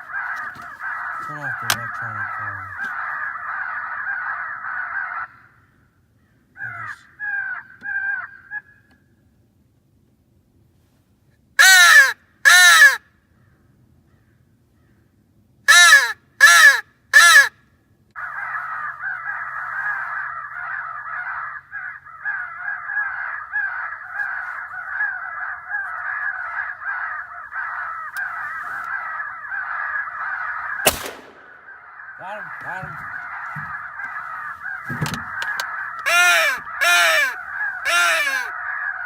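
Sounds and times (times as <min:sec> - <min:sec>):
electronic caller crow fight din: 0:00.0 - 0:05.4, 0:06.6 - 0:08.7, 0:11.6 - 0:13.0, 0:15.7 - 0:17.5, 0:31.6 - 0:39.0
crow caws from a mouth call: 0:00.0 - 0:09.1, 0:11.6 - 0:13.5, 0:15.7 - 0:17.6, 0:18.2 - 0:39.0.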